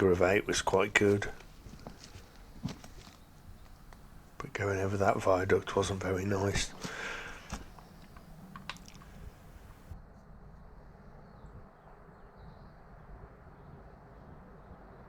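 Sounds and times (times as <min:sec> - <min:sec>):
distant bird calls: 0:00.0 - 0:10.0
steady low rumble: 0:00.0 - 0:10.0
light clicks: 0:06.6 - 0:09.9.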